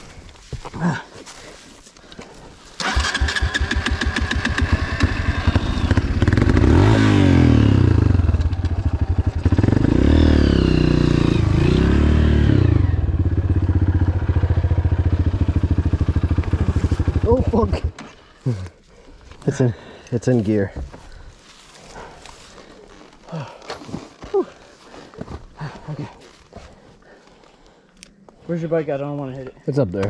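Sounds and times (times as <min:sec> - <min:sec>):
dirt bike engine revving and idling: 0:02.8 - 0:18.1.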